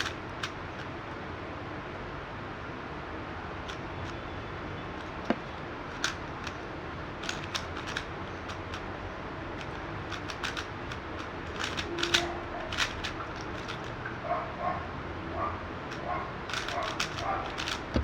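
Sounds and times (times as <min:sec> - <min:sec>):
speed cube clicking: 0:00.0 - 0:01.0, 0:03.6 - 0:04.2, 0:04.9 - 0:14.0, 0:15.9 - 0:18.0.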